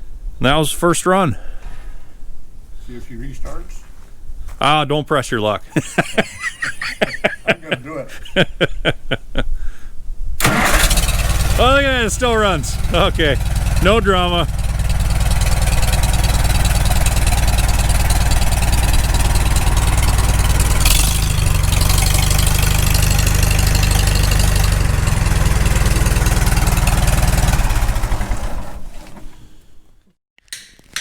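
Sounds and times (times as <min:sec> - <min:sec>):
tractor engine idling: 0:10.4 - 0:29.2.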